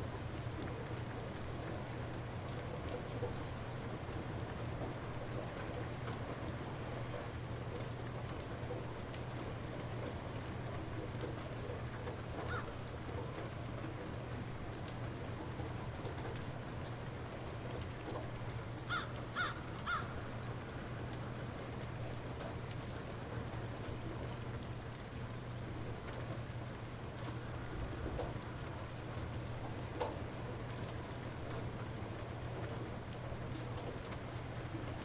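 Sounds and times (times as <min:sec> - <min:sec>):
light rain falling: 0:00.0 - 0:35.0
bird calling: 0:18.9 - 0:20.2.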